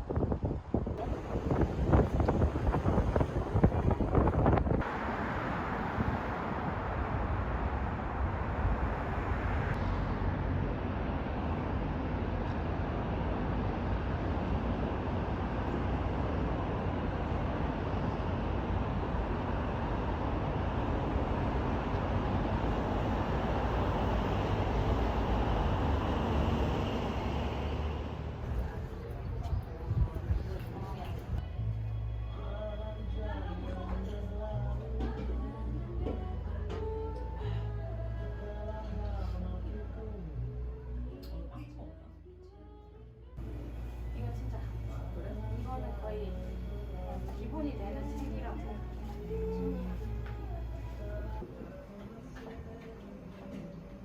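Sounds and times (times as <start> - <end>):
distant road traffic hum: 1.0 - 31.4.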